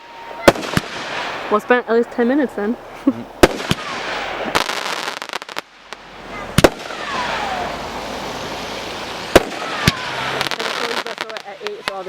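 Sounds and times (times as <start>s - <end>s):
falling firework whistle: 0.0s - 1.8s, 3.4s - 5.6s, 6.3s - 11.1s
crackling hiss: 0.0s - 12.0s
firework crackles: 0.0s - 12.0s.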